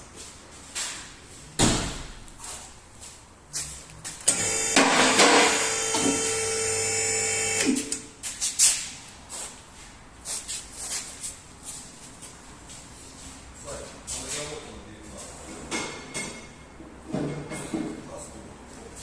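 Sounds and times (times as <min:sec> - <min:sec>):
power tool motor running: 0:04.3 - 0:08.0
tools knocking and clattering: 0:15.6 - 0:18.0.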